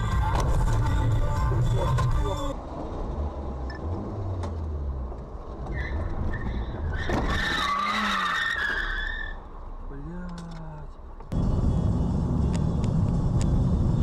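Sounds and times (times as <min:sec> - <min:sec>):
car engine and road rumble: 0:00.0 - 0:14.0
tyre squeal: 0:05.6 - 0:09.4.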